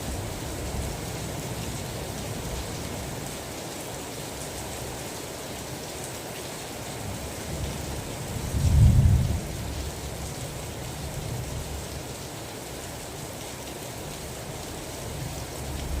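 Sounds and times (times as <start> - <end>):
heavy rain hiss: 0.0 - 16.0
low thunder rumble: 8.4 - 9.8.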